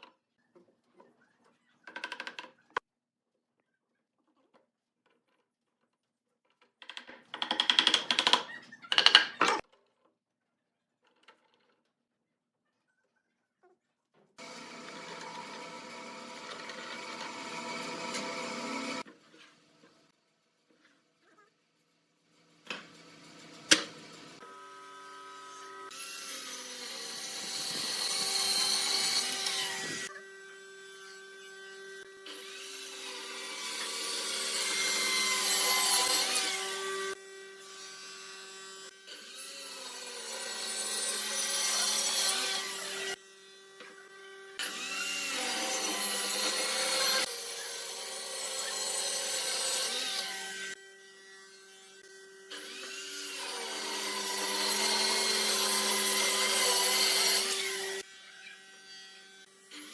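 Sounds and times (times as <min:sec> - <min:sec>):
power tool cutting wood: 0:14.4 - 0:19.1, 0:22.8 - 0:59.9.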